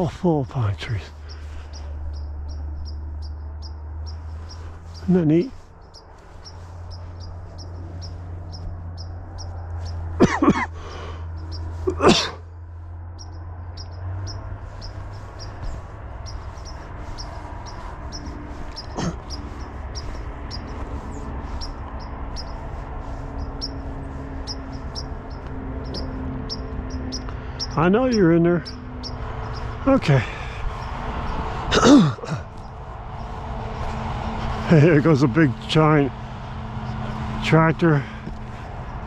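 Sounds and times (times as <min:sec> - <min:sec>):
low hum: 0:00.0 - 0:27.9
loud bird calls: 0:00.0 - 0:39.0
small birds chirping: 0:00.0 - 0:39.0.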